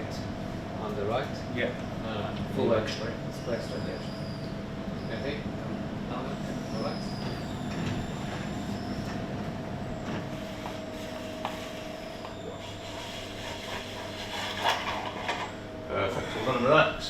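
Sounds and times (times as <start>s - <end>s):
mechanical hum: 0.0s - 17.0s.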